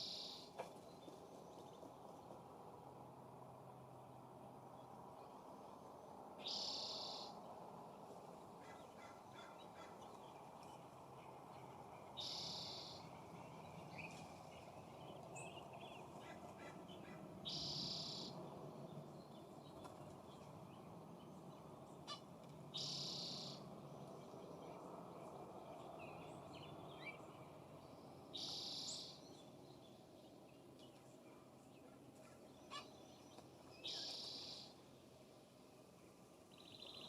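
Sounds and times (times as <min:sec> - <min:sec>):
small birds chirping: 0:00.0 - 0:01.9, 0:08.6 - 0:35.0, 0:36.4 - 0:37.0
low background hiss: 0:00.0 - 0:37.0
bird harsh rasping call: 0:12.2 - 0:13.0.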